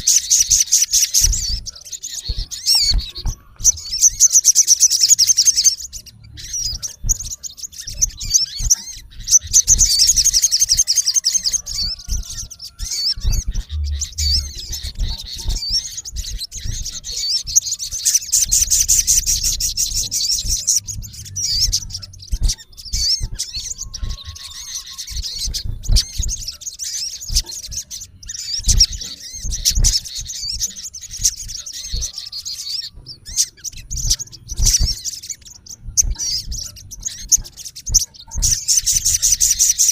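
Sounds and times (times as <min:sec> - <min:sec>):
bird chirping trills: 0:00.0 - 0:39.9
low thumps and rumbles: 0:11.7 - 0:17.7, 0:18.4 - 0:26.6.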